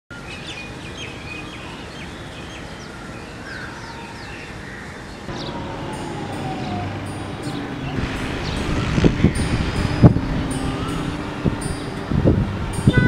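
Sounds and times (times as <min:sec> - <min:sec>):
birds chirping: 0:00.3 - 0:13.0
outdoor background rumble: 0:05.3 - 0:13.0.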